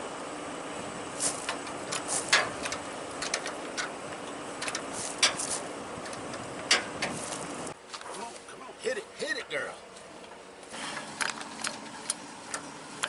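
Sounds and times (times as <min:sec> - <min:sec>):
steady mechanical hum: 0:00.0 - 0:13.0
metal clicks and clanks: 0:01.4 - 0:07.5.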